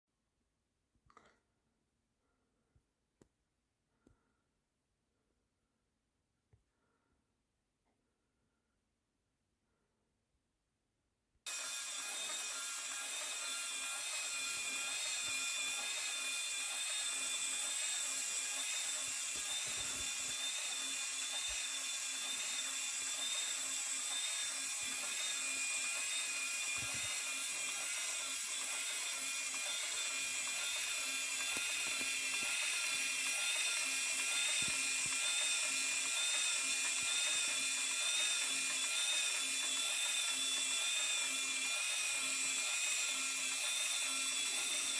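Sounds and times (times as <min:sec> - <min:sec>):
small electric motor gear whine: 0:11.5 - 0:44.9.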